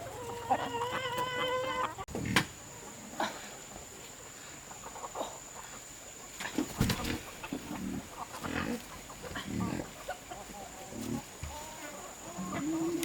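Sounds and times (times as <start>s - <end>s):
farm animals grunting: 7.2s - 13.0s.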